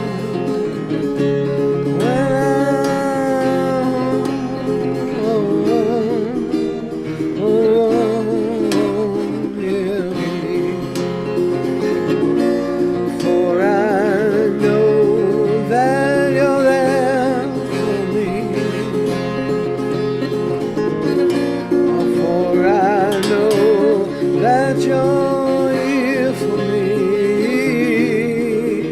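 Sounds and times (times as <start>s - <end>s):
acoustic guitar playing: 0.0s - 28.9s
person scat singing: 2.0s - 6.6s.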